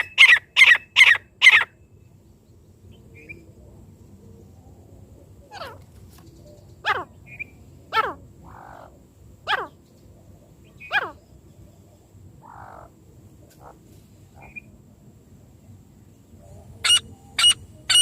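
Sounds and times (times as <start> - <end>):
francolin calling: 0.0 - 1.9, 6.8 - 9.8, 10.6 - 13.0, 13.6 - 14.8, 16.4 - 18.0.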